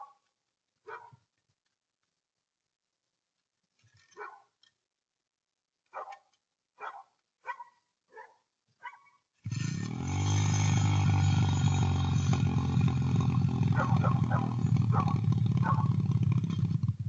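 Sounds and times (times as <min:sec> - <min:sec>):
dog barking: 0:00.8 - 0:01.2, 0:04.2 - 0:04.5, 0:05.9 - 0:09.2, 0:13.7 - 0:15.9
dirt bike engine running: 0:09.4 - 0:17.0.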